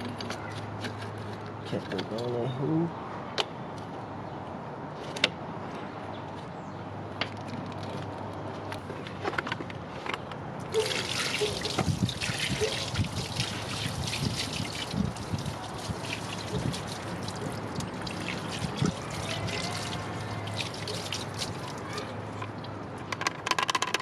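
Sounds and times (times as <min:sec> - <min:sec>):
heavy water splashing: 0:10.7 - 0:22.1
water pouring and dripping: 0:10.7 - 0:22.8.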